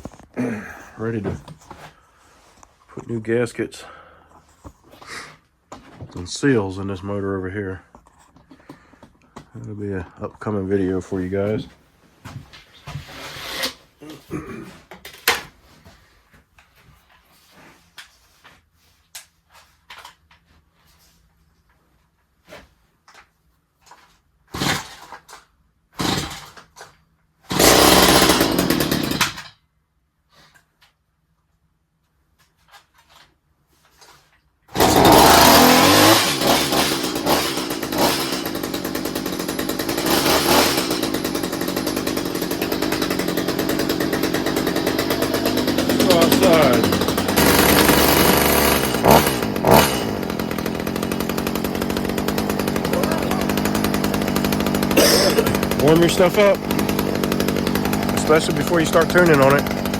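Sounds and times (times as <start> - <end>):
hedge trimmer engine bursts: 24.6 - 25.2, 26.0 - 26.7, 27.5 - 29.5, 34.7 - 59.9.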